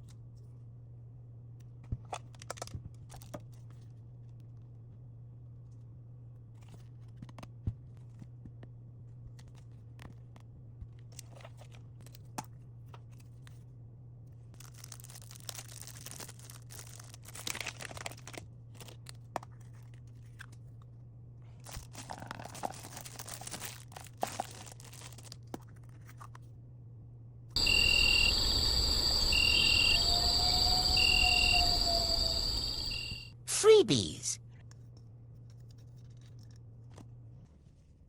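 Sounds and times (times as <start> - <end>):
packaging crinkling and tearing: 14.6 - 18.4, 21.7 - 25.3
steady low hum: 27.6 - 33.3.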